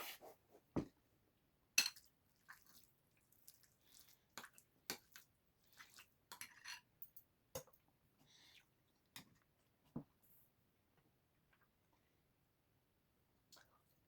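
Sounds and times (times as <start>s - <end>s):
wet eating sounds: 2.0s - 6.7s.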